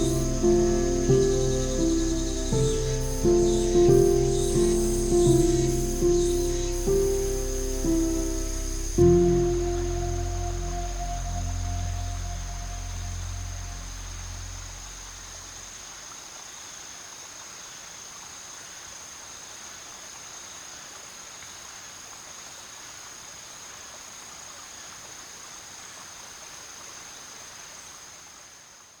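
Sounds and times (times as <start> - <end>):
insects chirring: 0.0 - 22.7
outdoor ambience hiss: 0.0 - 29.0.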